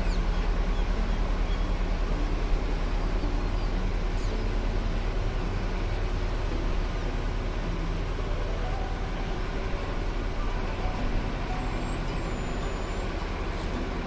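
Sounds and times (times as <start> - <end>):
tractor engine running: 0.0 - 14.0
faint high whistle: 11.4 - 13.7.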